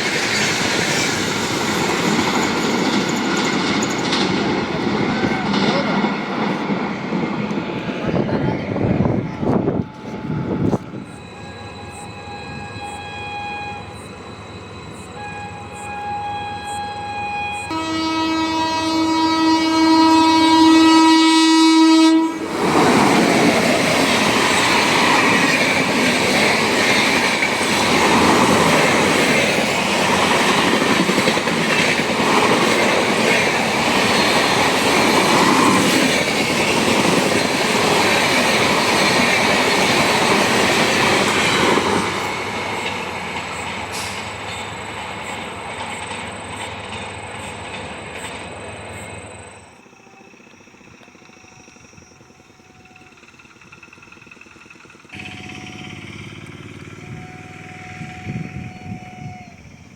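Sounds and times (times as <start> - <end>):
train wheels clattering over rails: 0.0 - 10.9, 22.4 - 49.1, 50.5 - 58.7
locomotive horn blasts: 9.7 - 14.2, 15.0 - 22.4, 55.2 - 59.8.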